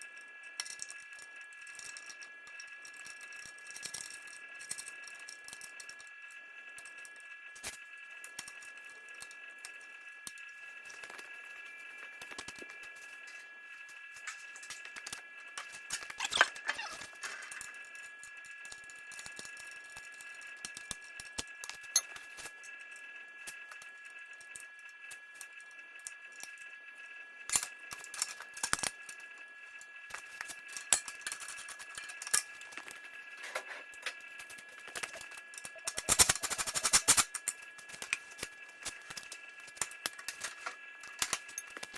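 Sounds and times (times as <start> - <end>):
high-pitched hum: 33.4 - 37.4.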